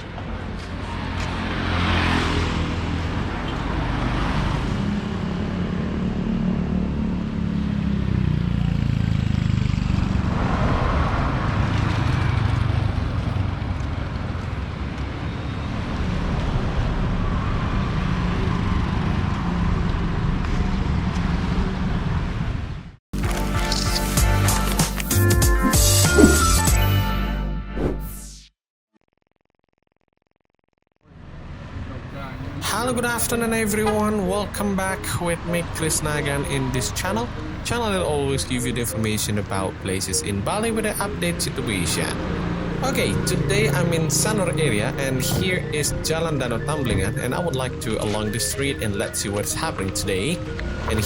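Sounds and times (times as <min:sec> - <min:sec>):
vehicles passing: 0:00.0 - 0:23.0, 0:25.6 - 0:26.7, 0:31.1 - 0:51.0
road traffic engine rumble: 0:31.5 - 0:51.0.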